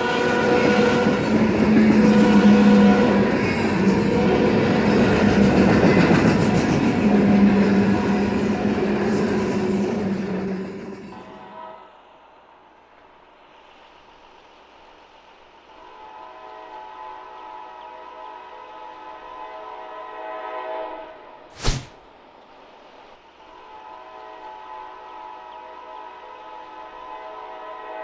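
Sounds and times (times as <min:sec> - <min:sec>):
distant locomotive horn: 0:00.0 - 0:04.9, 0:11.2 - 0:12.0, 0:15.9 - 0:21.5, 0:23.7 - 0:28.0
sharp knock: 0:21.6 - 0:22.0.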